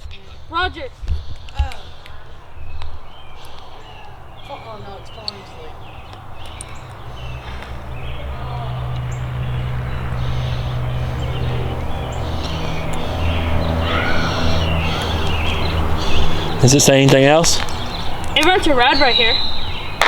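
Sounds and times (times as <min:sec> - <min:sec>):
low motor hum: 0:00.0 - 0:20.0.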